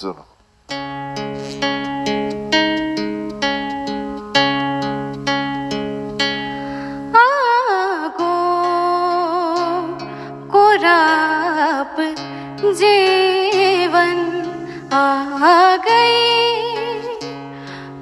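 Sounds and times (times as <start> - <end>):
acoustic guitar chords plucked: 0.6 - 18.0
young woman singing with vibrato: 7.1 - 18.0.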